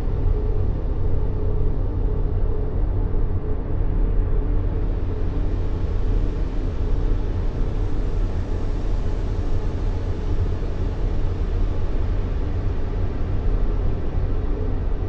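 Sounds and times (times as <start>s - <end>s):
white noise hiss: 4.4s - 15.0s.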